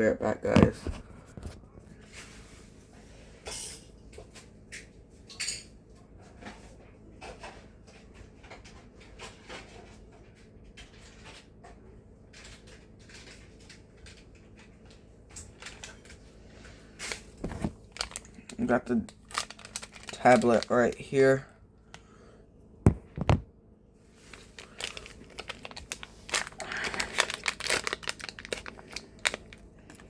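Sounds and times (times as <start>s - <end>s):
low steady hum: 0.0s - 30.0s
kitchen knocks and clicks: 22.9s - 23.5s.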